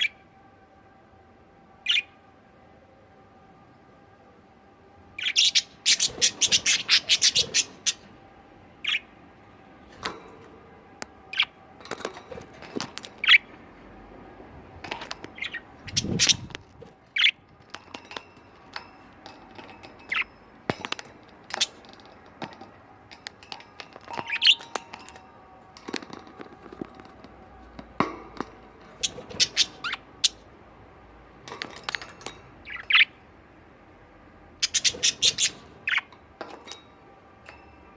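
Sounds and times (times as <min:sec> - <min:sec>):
budgerigars chirping and chattering: 0:01.9 - 0:02.1, 0:05.2 - 0:08.1, 0:08.8 - 0:09.1, 0:13.2 - 0:13.5, 0:15.4 - 0:16.5, 0:17.2 - 0:17.4, 0:29.0 - 0:30.5, 0:32.6 - 0:33.2, 0:34.6 - 0:36.1.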